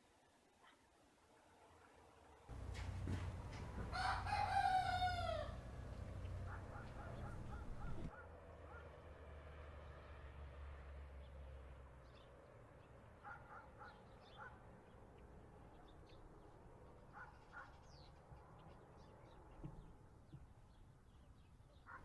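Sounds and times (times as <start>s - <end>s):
short harsh bird calls: 6.3s - 8.2s.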